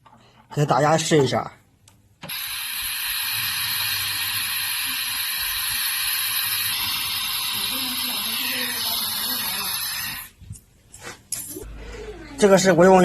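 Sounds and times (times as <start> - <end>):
air pump hissing: 2.2 - 10.4.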